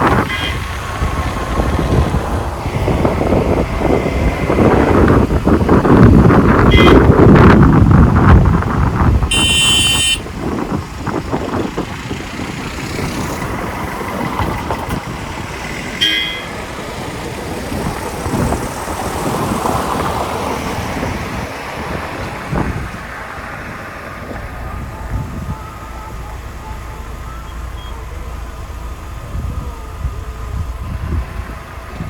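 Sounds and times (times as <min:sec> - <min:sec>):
road and wind noise: 0:00.0 - 0:32.0
short horn toots: 0:06.6 - 0:07.1, 0:09.3 - 0:10.3.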